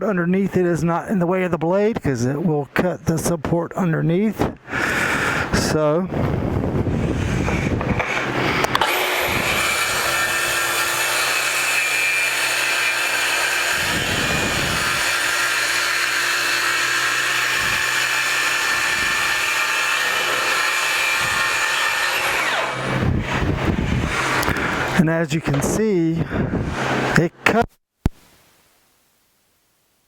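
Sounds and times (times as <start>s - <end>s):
track saw cutting plywood: 6.8s - 25.7s.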